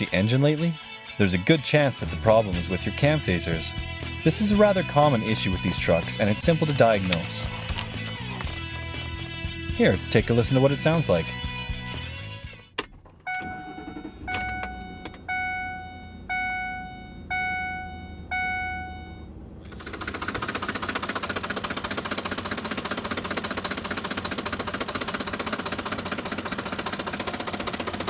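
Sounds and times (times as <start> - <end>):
engine ticking clatter: 2.3 - 11.1, 19.7 - 28.0
vehicle warning chime: 13.2 - 19.5.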